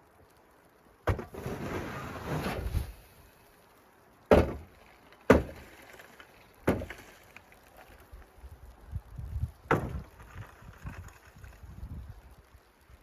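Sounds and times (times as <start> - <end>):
rough scraping rustle: 1.1 - 8.8, 9.9 - 12.4
sharp knocks: 4.3 - 4.7, 5.3 - 5.7, 6.7 - 7.0, 9.7 - 10.0.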